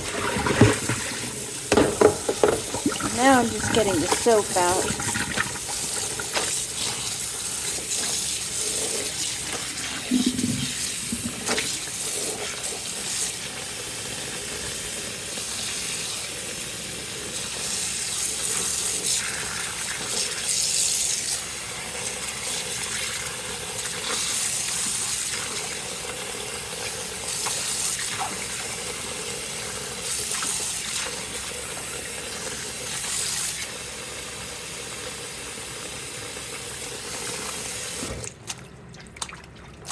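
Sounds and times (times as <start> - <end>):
cloth sloshing in water: 0.0 - 7.2, 38.1 - 39.9
water running and splashing: 0.0 - 13.6.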